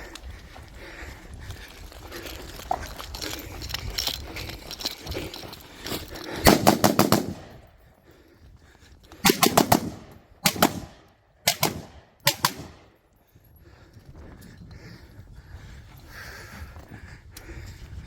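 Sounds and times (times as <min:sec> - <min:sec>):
gunshots: 0:06.4 - 0:07.6, 0:09.2 - 0:12.9.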